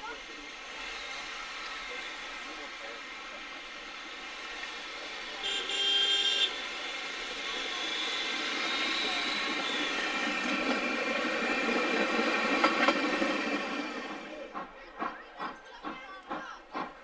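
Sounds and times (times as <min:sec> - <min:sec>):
train running: 0:00.0 - 0:17.0
locomotive whistle blast: 0:05.4 - 0:10.8.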